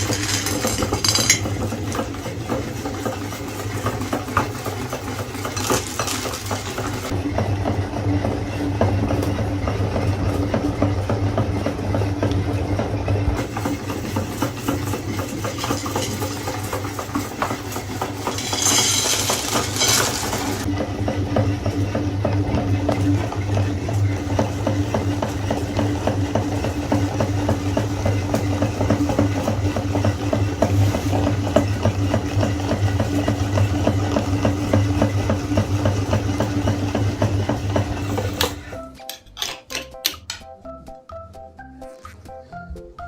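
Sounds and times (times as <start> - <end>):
meat grinder motor hum: 0.0 - 38.8
hard candy crunching: 14.8 - 20.7.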